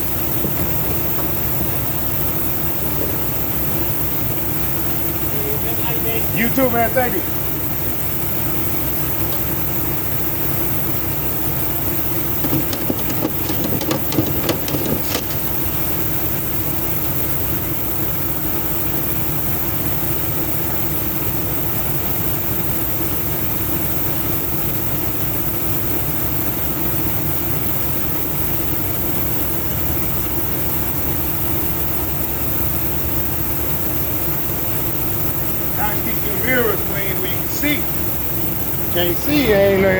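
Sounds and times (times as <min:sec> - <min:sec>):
truck engine idling: 0:00.0 - 0:39.9
clicks and knocks: 0:12.4 - 0:15.8.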